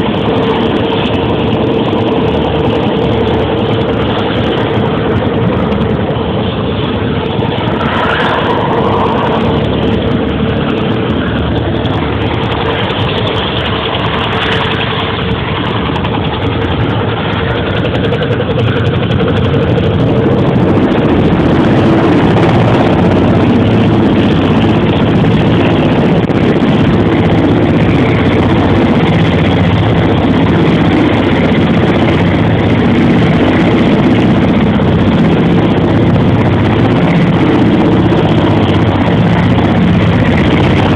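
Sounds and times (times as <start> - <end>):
helicopter engine running: 0.0 - 40.9.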